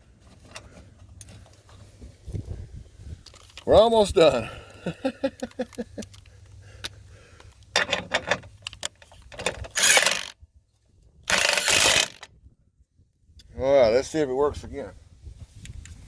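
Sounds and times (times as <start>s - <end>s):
ratchet wrench clicking: 8.6s - 10.3s, 11.3s - 12.3s.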